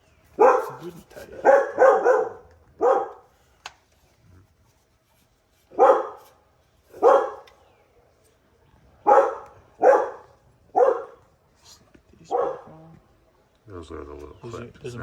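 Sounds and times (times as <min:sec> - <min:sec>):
dog barking: 0:00.3 - 0:03.3, 0:05.7 - 0:06.3, 0:06.9 - 0:07.4, 0:09.0 - 0:11.2, 0:12.3 - 0:12.8.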